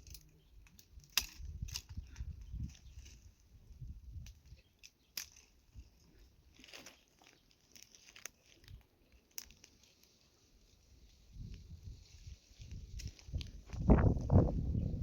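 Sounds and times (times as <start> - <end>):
faint crunches and clicks: 4.2 - 10.3.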